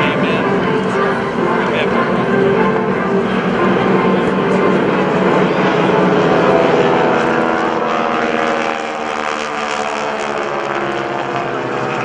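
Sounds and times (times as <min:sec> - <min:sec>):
propeller planes flying past: 0:00.0 - 0:12.0.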